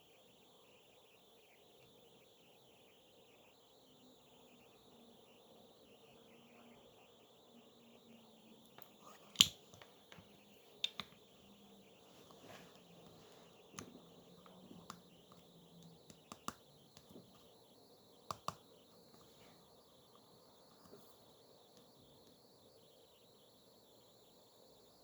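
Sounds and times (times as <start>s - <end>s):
sharp clicks and light taps: 8.6s - 11.2s, 13.0s - 17.5s, 18.3s - 18.7s.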